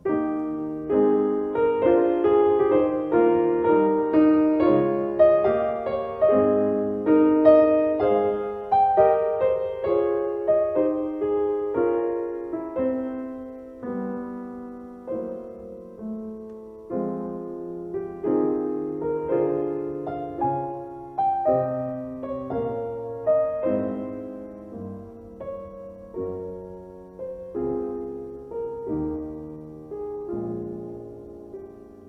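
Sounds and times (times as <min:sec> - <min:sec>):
slow piano music: 0:00.0 - 0:32.0.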